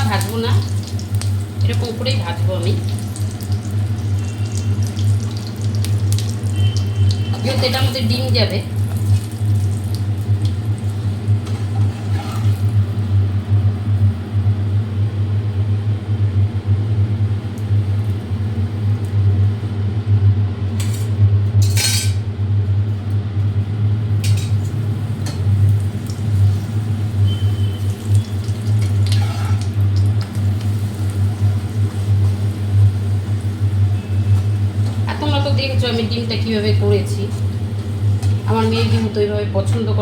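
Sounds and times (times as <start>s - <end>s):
utensil clinking and scraping pan: 28.8s - 29.7s, 38.2s - 39.2s.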